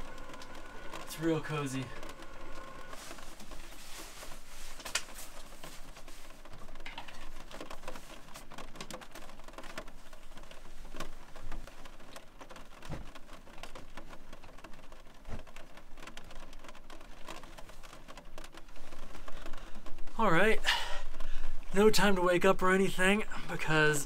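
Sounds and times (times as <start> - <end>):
rain pattering on van roof: 0.0 - 24.0.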